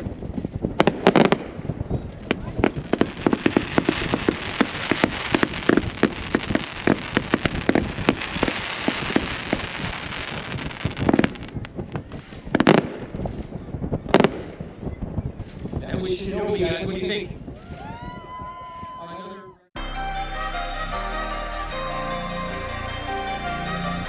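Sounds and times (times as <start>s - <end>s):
fireworks cake firing: 0.0s - 19.0s.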